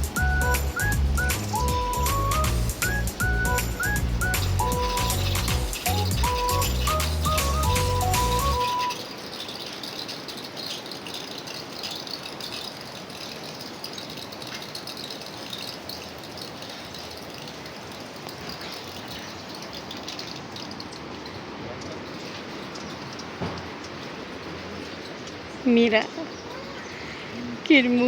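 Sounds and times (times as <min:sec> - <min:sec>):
background music: 0:00.0 - 0:08.9
faint ticks and rattles: 0:00.0 - 0:28.0.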